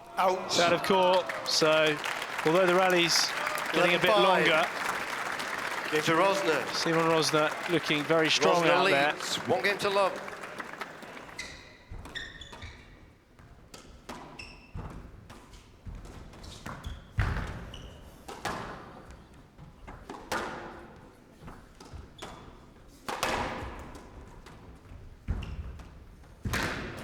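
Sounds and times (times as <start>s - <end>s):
squash ball hitting walls: 13.7s - 19.0s, 23.0s - 25.8s.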